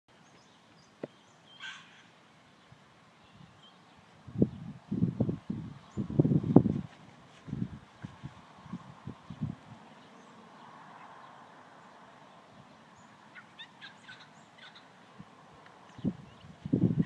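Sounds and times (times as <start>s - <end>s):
faint high bird chirps: 0.2s - 2.1s, 13.0s - 14.9s.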